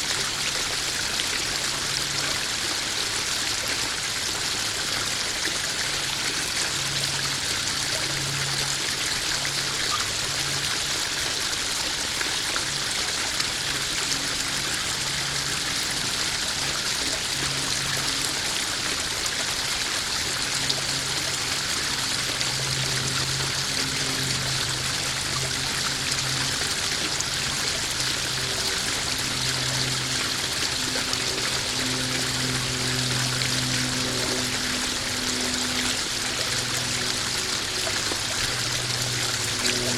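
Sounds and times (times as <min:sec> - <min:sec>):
waterfall trickling: 0:00.0 - 0:39.9.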